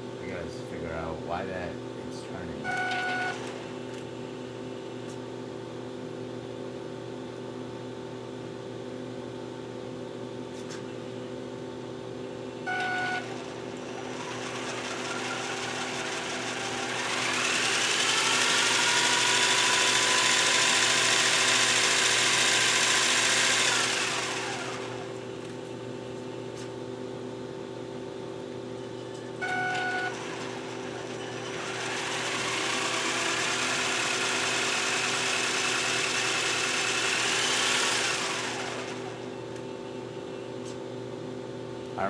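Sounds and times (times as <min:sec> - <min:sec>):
electric motor whine: 0:02.3 - 0:04.1, 0:12.7 - 0:25.6, 0:29.4 - 0:39.6.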